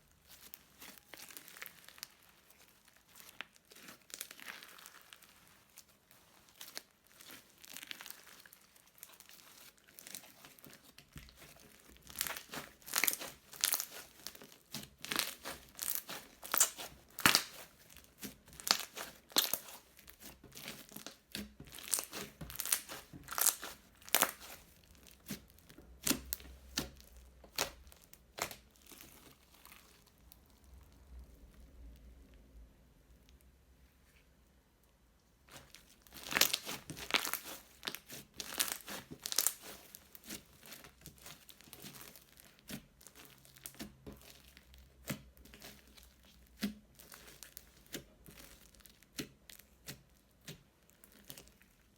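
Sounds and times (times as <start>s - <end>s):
crunchy slime crackling and popping: 0.0s - 32.5s, 35.4s - 51.9s.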